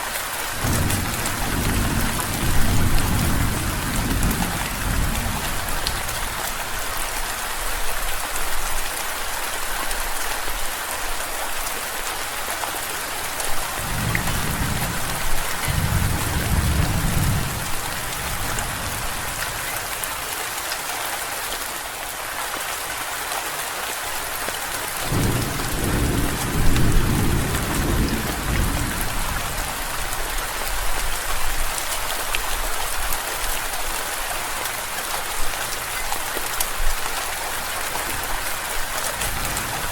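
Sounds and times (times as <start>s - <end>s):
steady rain falling: 0.0s - 39.9s
low rolls of thunder: 0.6s - 6.0s, 13.8s - 19.7s, 25.1s - 29.5s.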